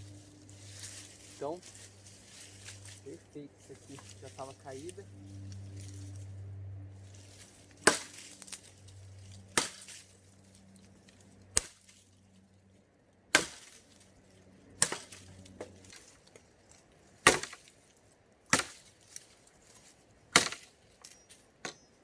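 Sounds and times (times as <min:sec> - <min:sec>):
axe chopping wood: 0:07.8 - 0:08.6, 0:09.5 - 0:10.1, 0:11.6 - 0:11.9, 0:13.3 - 0:14.0, 0:14.8 - 0:16.1, 0:17.2 - 0:17.8, 0:18.5 - 0:19.3, 0:20.3 - 0:20.8, 0:21.6 - 0:21.9.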